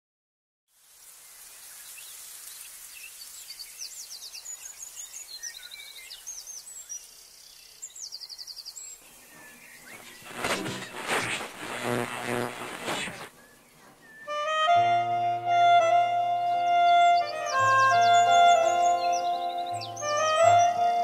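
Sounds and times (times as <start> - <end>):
birds chirping and trilling: 3.0 - 11.0, 13.3 - 14.5, 16.6 - 21.0
steady high hiss: 8.7 - 13.8.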